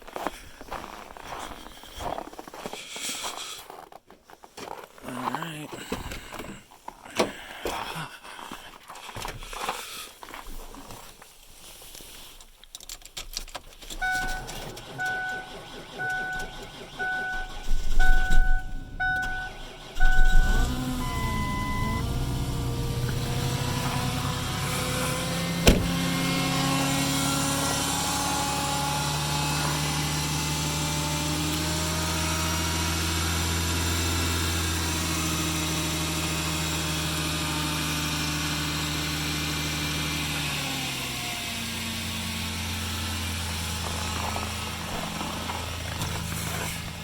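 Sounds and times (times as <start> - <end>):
pickup engine idling: 14.0 - 47.0
sharp knock: 25.6 - 26.0.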